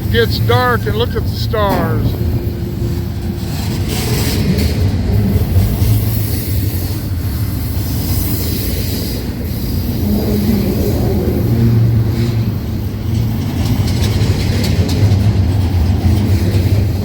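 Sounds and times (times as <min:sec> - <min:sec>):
freight train rumbling past: 0:00.0 - 0:17.0
rattle of cars on rails: 0:01.3 - 0:17.0.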